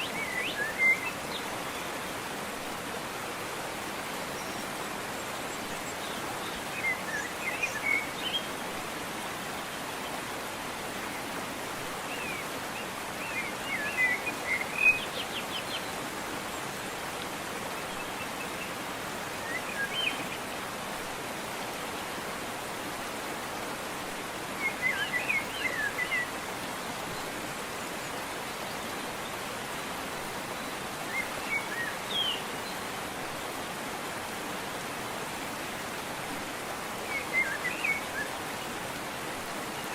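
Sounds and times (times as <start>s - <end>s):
songbird chirping: 0.0s - 2.3s, 17.8s - 20.5s, 24.6s - 32.9s, 37.0s - 38.8s
waterfall rushing: 0.0s - 39.9s.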